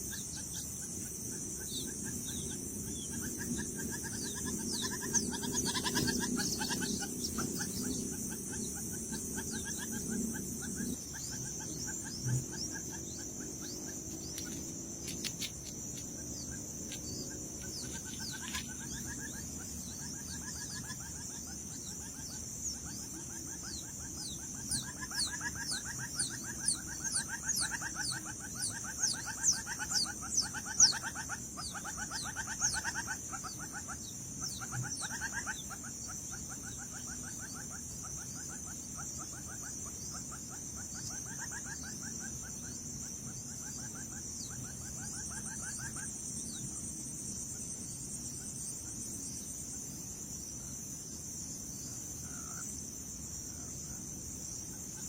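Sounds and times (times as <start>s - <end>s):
rapid pulsing animal calls: 0.0s - 42.6s
quick falling chirps: 13.7s - 18.9s.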